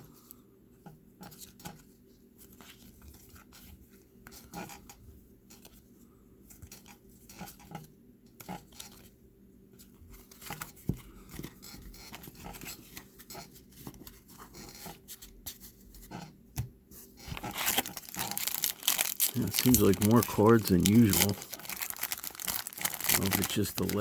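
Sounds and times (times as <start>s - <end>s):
trading cards clicking and rustling: 17.4s - 24.0s.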